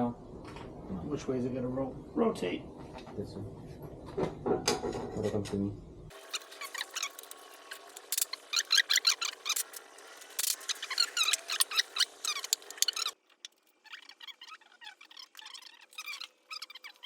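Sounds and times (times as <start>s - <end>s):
hand tools clicking on metal: 8.0s - 14.2s.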